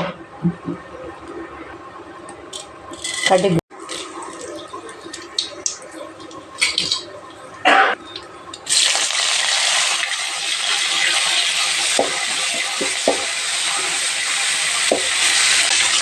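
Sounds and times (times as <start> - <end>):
hot oil sizzling: 8.1 - 16.0.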